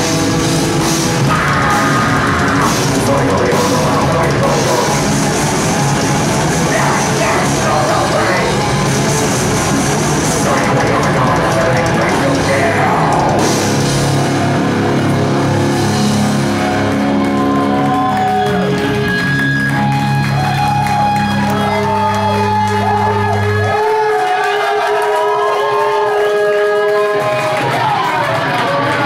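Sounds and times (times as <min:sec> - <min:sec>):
heavy metal band playing live: 0:00.0 - 0:29.0
vocals: 0:01.2 - 0:09.0, 0:09.8 - 0:14.2, 0:23.6 - 0:29.0.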